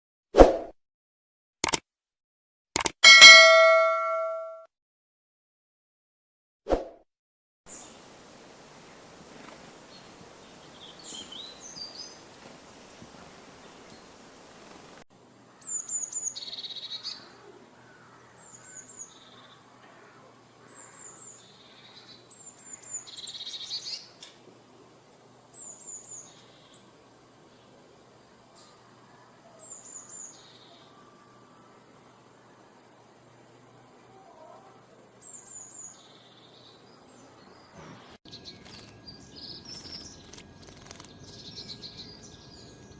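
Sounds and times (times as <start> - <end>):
sharp click: 1.6 - 1.8, 2.8 - 4.4
light hiss: 7.7 - 15.0
songbirds chirping: 7.7 - 42.9.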